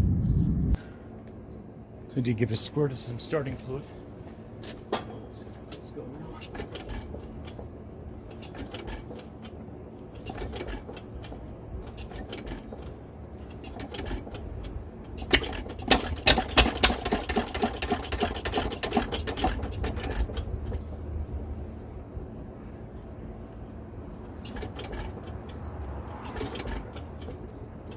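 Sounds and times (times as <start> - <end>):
gas engine clicks: 6.4 - 21.1, 22.9 - 27.9
gas engine rapid firing: 15.2 - 20.8.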